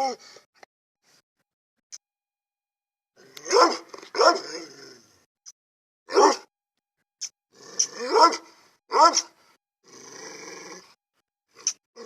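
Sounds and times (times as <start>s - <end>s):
dog barking: 3.4s - 4.6s, 6.1s - 6.5s, 8.0s - 9.4s.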